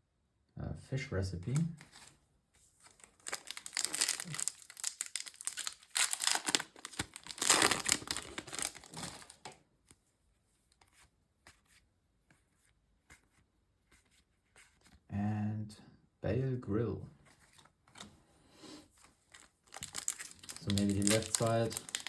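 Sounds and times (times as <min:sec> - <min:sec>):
foil wrapper tearing and crinkling: 0:02.8 - 0:09.5, 0:19.3 - 0:22.0.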